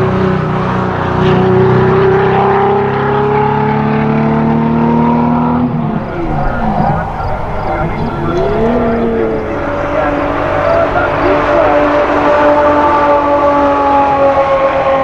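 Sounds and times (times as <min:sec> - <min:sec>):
performance car engine accelerating: 0:05.7 - 0:13.1.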